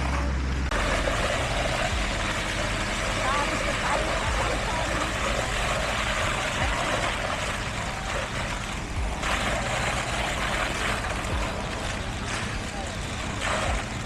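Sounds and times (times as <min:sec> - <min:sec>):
heavy machinery engines running: 0:00.0 - 0:14.0.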